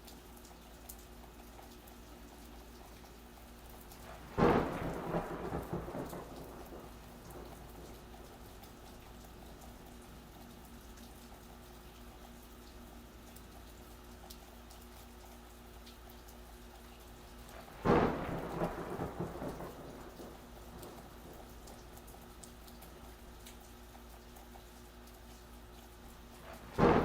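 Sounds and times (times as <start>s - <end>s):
gentle rain: 0.0s - 27.0s
thunderclap rumbling: 4.0s - 10.8s, 17.5s - 22.5s, 26.4s - 27.0s.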